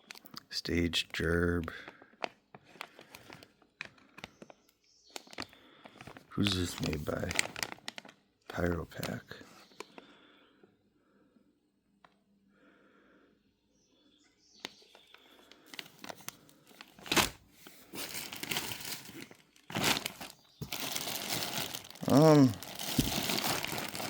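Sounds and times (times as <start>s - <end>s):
plastic bags crinkling: 2.0s - 10.0s, 15.0s - 24.0s.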